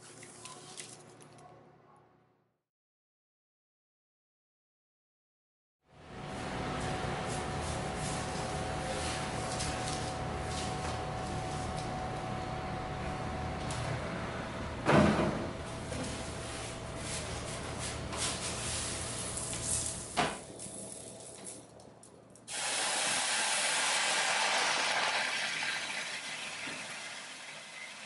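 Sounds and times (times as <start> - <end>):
loud steam hiss: 22.5 - 24.6.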